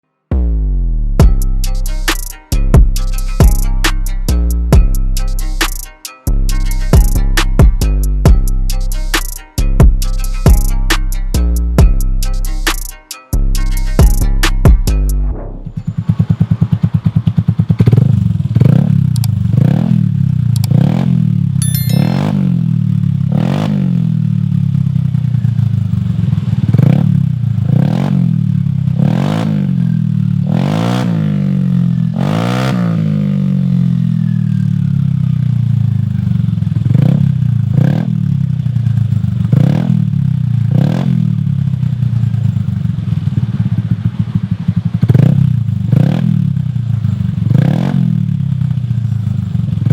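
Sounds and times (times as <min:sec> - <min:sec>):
scooter engine revving: 0:13.6 - 0:49.9.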